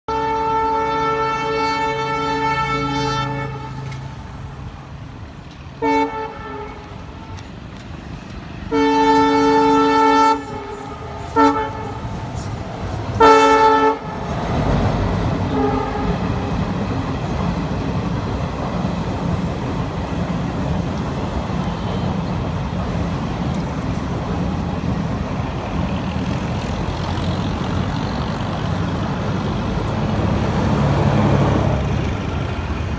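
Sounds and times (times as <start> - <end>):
locomotive air horn: 0.1 - 4.1, 5.8 - 7.4, 8.6 - 14.3, 15.5 - 16.5
train passing at speed: 0.1 - 32.9.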